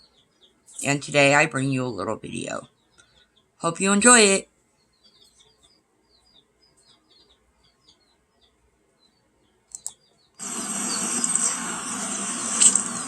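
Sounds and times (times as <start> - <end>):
small birds chirping: 0.0 - 13.0
loud steady noise: 10.4 - 13.0.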